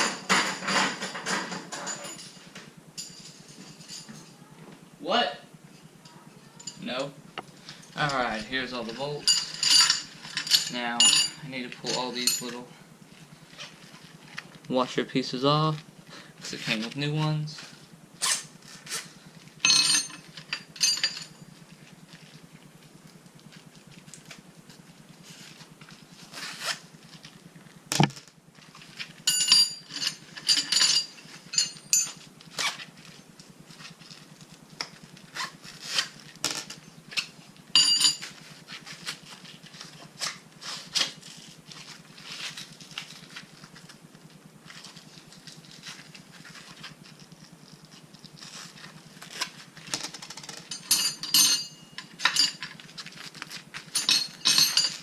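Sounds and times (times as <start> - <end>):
ringing metallic clinks: 5.8 - 7.1, 9.2 - 12.7, 19.6 - 21.5, 29.2 - 32.2, 37.7 - 38.3, 50.6 - 52.7, 53.9 - 55.0
metal bolts clicking and rattling: 9.2 - 12.6, 19.7 - 21.3, 50.3 - 52.7, 53.9 - 55.0.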